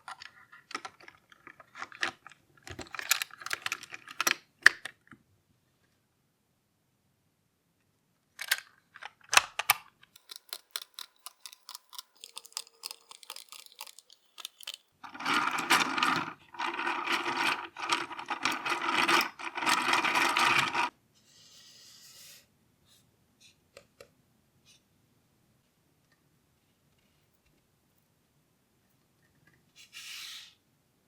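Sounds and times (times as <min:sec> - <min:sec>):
plastic parts clicking and tapping: 0:00.0 - 0:05.2, 0:08.4 - 0:20.9
faint hiss: 0:29.7 - 0:30.8.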